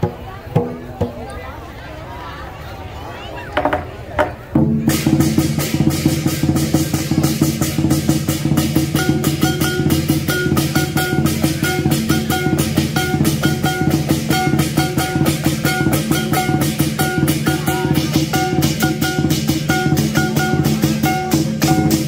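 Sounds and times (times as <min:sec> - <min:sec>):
drum strikes: 0:00.0 - 0:01.3, 0:03.6 - 0:22.0
clashing cymbals: 0:04.8 - 0:22.0.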